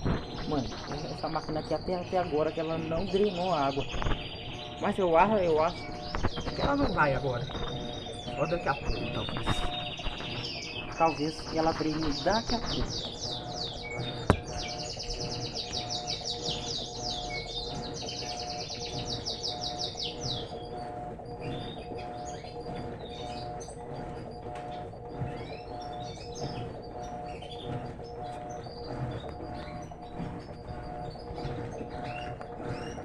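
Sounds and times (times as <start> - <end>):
faint pulsing tone: 0.0 - 33.0
small birds chirping: 0.0 - 33.0
steady hum: 0.0 - 33.0.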